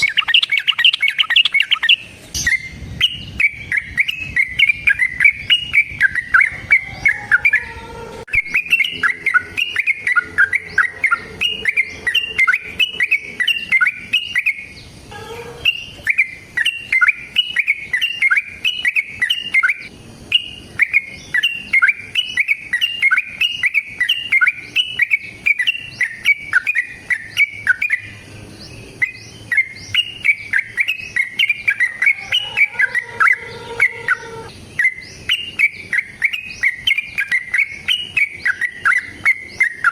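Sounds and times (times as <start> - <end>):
bird chirping bubbly notes: 0.0 - 7.6, 8.3 - 14.8.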